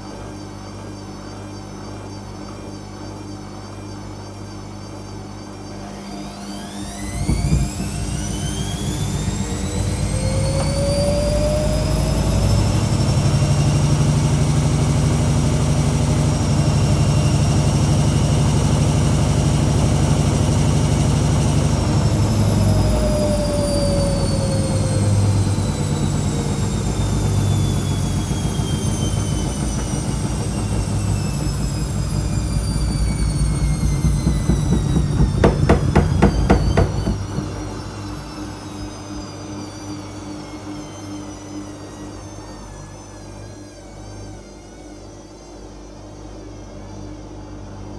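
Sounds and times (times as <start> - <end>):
washing machine motor whine: 0.0 - 47.9
deep drum rumble: 6.9 - 19.3, 21.7 - 38.5
quick rattling knocks: 32.1 - 38.0.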